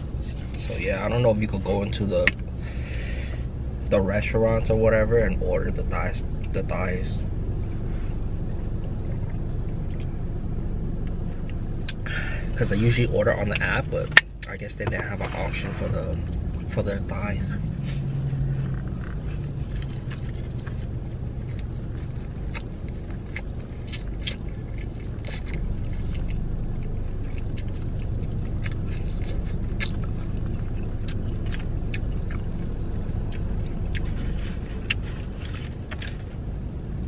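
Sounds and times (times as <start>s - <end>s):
low car hum: 0.0s - 37.0s
crunchy chewing: 15.4s - 36.5s.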